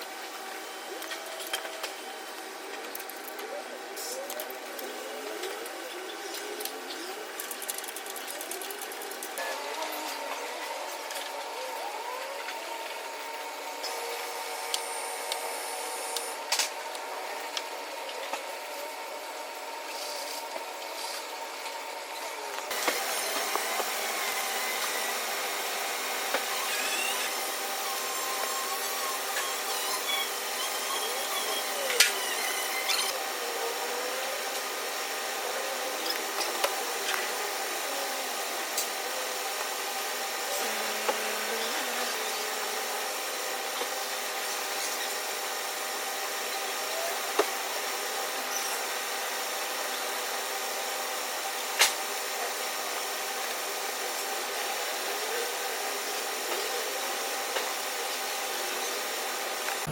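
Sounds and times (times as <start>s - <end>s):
power tool running: 0.0s - 59.9s
squeaks and clicks: 28.8s - 33.2s.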